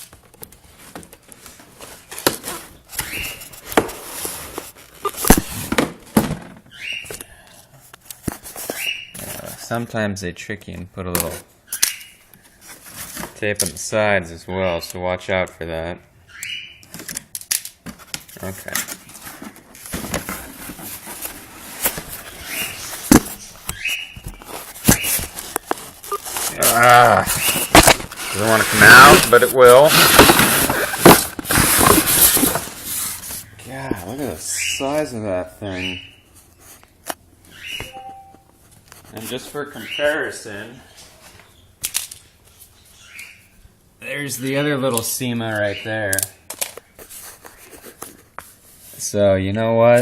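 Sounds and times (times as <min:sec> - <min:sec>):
cardboard rustling and scraping: 0:00.0 - 0:06.7, 0:08.2 - 0:09.6, 0:12.5 - 0:13.4, 0:17.9 - 0:34.2, 0:46.5 - 0:49.0
squeaky rubs: 0:20.7 - 0:34.2.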